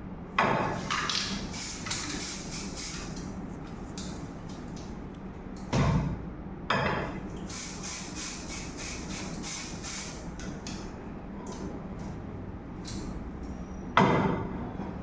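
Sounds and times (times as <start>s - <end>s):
steady low hum: 0.0s - 15.0s
aerosol spray bursts: 1.2s - 3.2s, 7.5s - 10.3s.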